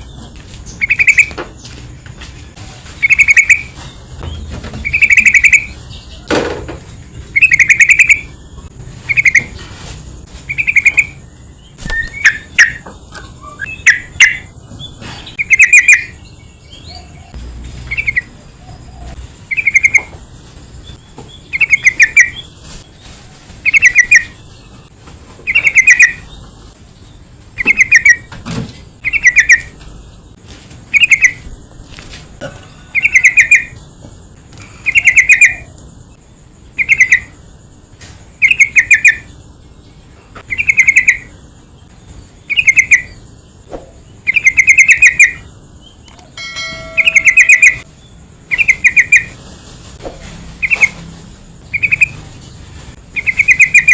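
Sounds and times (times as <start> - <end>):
quick bird chirps: 0.0 - 1.8, 2.8 - 6.2, 7.2 - 8.4, 9.0 - 16.2, 16.8 - 20.1, 20.8 - 26.4, 29.0 - 29.8, 46.8 - 49.4, 50.5 - 53.9
bird calling in warbled phrases: 0.7 - 1.4, 2.9 - 3.8, 4.4 - 6.3, 7.3 - 8.4, 9.0 - 9.6, 10.4 - 11.2, 11.8 - 20.1, 21.4 - 22.5, 23.6 - 24.8, 25.4 - 26.4, 27.6 - 28.3, 29.0 - 29.8, 30.9 - 31.4, 32.9 - 33.8, 34.6 - 35.8, 36.8 - 37.4, 38.4 - 39.4, 40.4 - 41.4, 42.4 - 43.3, 44.2 - 49.4, 50.6 - 51.0, 51.6 - 52.2, 53.2 - 53.9.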